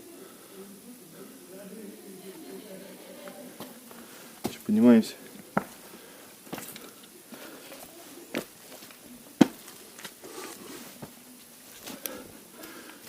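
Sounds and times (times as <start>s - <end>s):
footsteps on mud: 3.6s - 4.7s, 5.6s - 12.2s.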